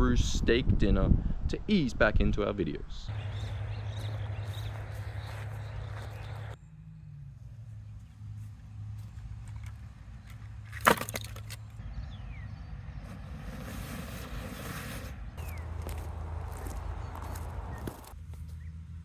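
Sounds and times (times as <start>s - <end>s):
wood cracking: 10.6s - 11.8s.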